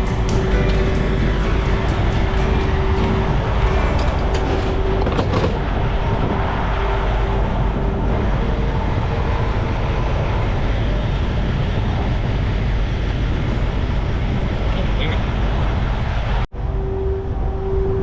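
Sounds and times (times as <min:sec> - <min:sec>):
truck engine running: 0:00.0 - 0:12.7.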